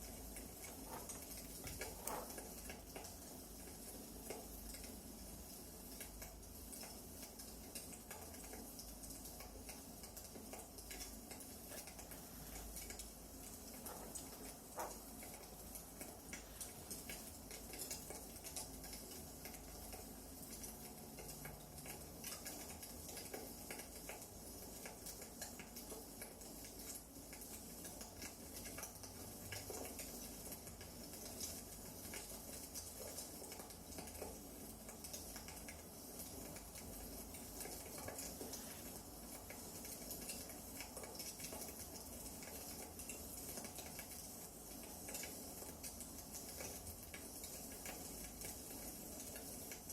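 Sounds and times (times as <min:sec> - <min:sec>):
wood fire crackling: 0:00.0 - 0:22.4.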